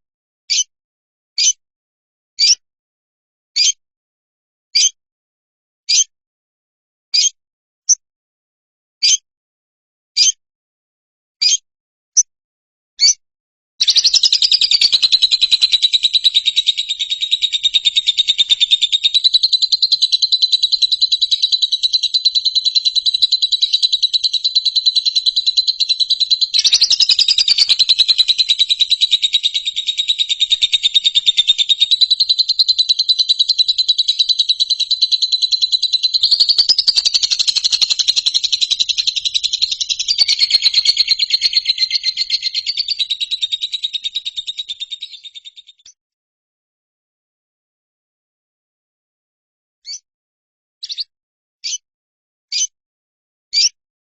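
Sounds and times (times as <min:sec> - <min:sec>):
high trilling animal call: 0:13.8 - 0:45.6.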